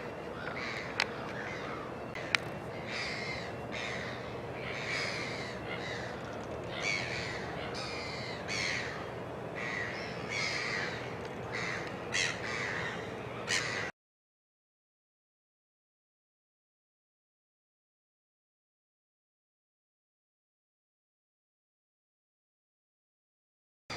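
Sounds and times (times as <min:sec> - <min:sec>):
gulls calling harshly: 0:00.0 - 0:13.9
steady background hum: 0:00.0 - 0:13.9.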